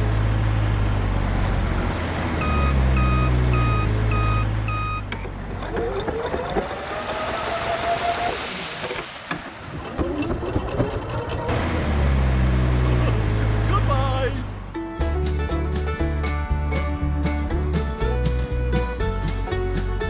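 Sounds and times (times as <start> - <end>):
low engine hum: 0.0 - 7.9, 9.7 - 20.0
reversing alarm beeps: 2.4 - 5.1.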